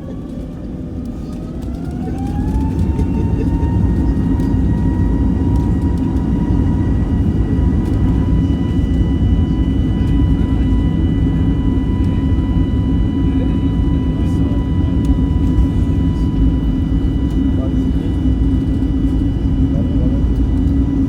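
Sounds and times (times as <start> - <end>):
deep engine rumble: 0.0 - 21.0
jet engine whine: 0.0 - 21.0.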